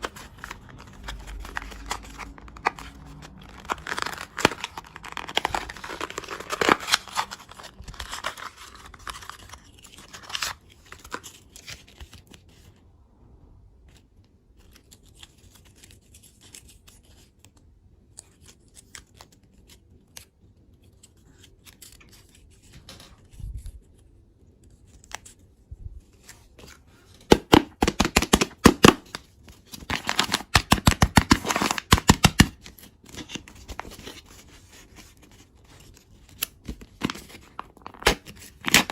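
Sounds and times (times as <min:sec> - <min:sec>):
plastic wrapper crinkling and tearing: 0:00.0 - 0:12.8, 0:27.2 - 0:38.9.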